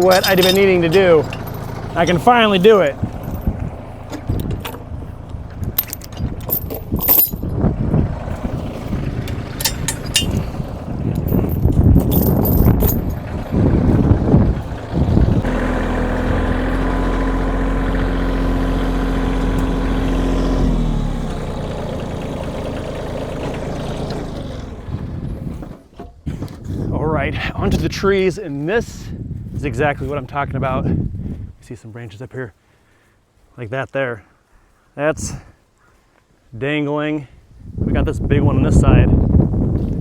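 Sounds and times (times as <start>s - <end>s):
metal clanking and rattling: 0.0s - 20.4s
tractor diesel engine running: 0.0s - 31.4s.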